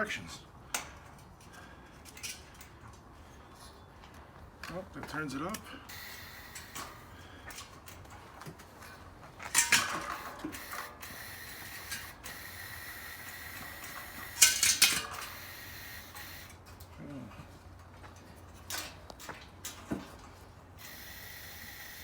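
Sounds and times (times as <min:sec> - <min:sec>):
metal clinking and rattling: 0:08.8 - 0:10.9, 0:13.6 - 0:15.6.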